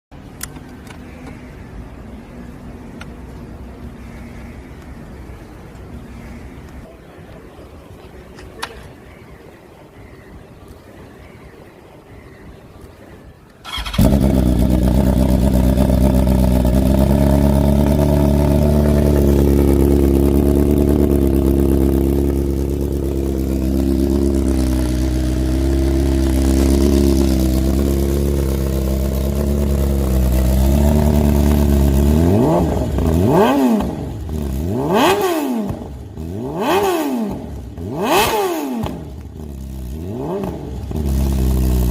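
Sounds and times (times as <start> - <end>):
motorcycle throttle blips: 12.7 - 41.9
motorcycle engine idling: 13.6 - 41.9
motorcycle engine starting: 13.6 - 41.9.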